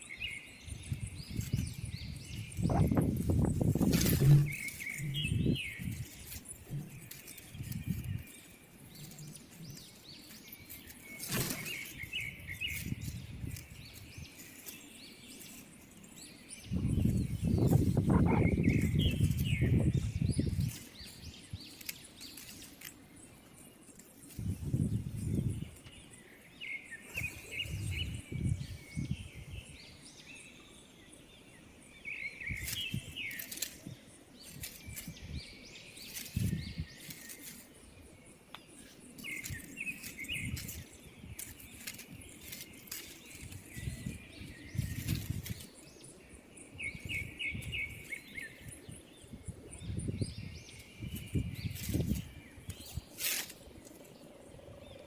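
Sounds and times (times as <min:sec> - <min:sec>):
high bird chirps: 0:16.6 - 0:22.8.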